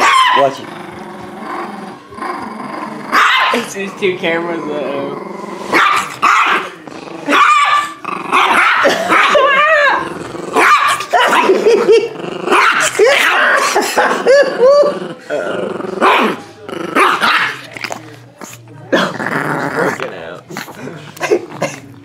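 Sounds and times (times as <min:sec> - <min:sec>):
dog yelping: 0:00.0 - 0:00.6, 0:03.1 - 0:03.6, 0:07.3 - 0:10.0
dog growling and barking: 0:00.0 - 0:22.0.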